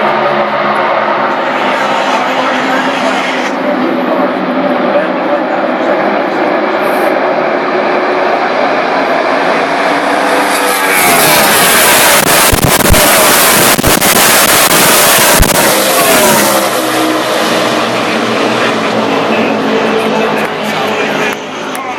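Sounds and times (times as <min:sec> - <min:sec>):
race car engines passing: 0:00.0 - 0:21.9
sharp engine crackles: 0:09.9 - 0:21.4.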